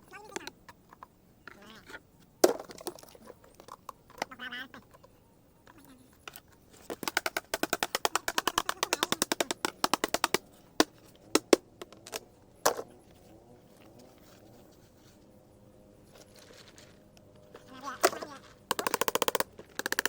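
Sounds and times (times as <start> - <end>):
sharp knocks on dried gourd: 6.9 - 12.0.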